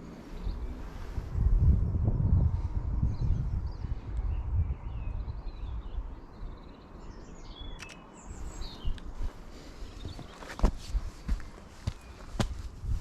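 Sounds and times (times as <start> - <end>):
songbirds chirping: 0.0 - 13.0
wind rumble on microphone: 0.0 - 13.0
short clicks: 7.7 - 8.0.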